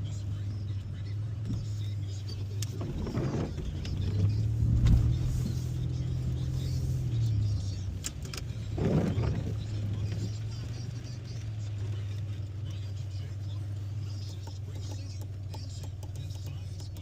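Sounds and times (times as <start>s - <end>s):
car engine and road hum: 0.0s - 17.0s
short louder rumble: 2.7s - 5.8s
sharp clicks: 14.0s - 17.0s.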